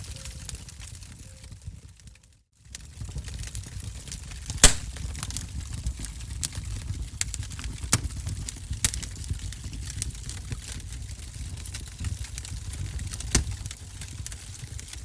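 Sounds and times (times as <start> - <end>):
wood fire crackling: 4.6 - 5.7, 8.3 - 15.0.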